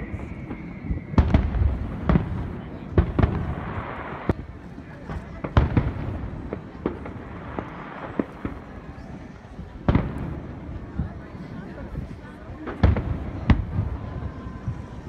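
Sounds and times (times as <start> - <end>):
fireworks bursting with sharp bangs: 0.0 - 15.0.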